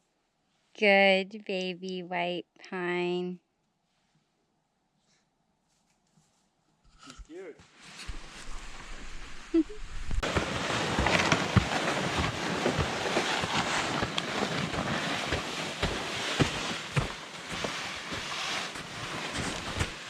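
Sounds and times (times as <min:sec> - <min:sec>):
footsteps crunching through wet snow: 0:10.2 - 0:20.0.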